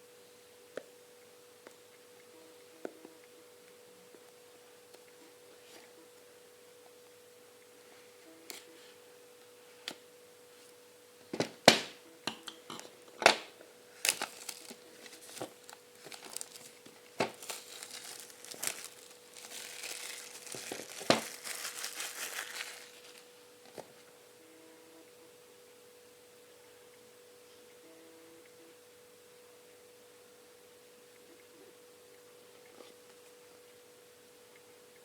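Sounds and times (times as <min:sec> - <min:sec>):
faint steady hum: 0:00.0 - 0:35.0
plastic wrap crinkling and tearing: 0:13.9 - 0:23.3.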